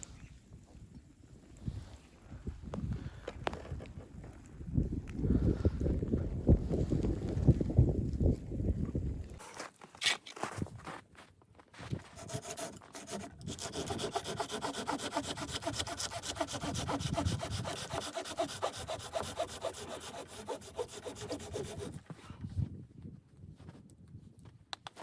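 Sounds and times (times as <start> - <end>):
hand saw cutting wood: 12.0 - 22.1.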